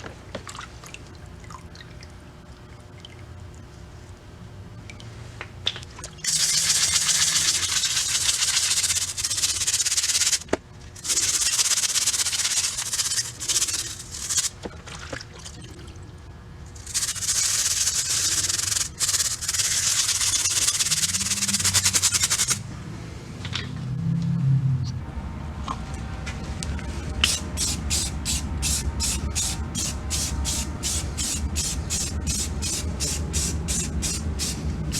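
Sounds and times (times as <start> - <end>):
abrasive sanding on metal: 16.8 - 22.6, 27.3 - 34.9.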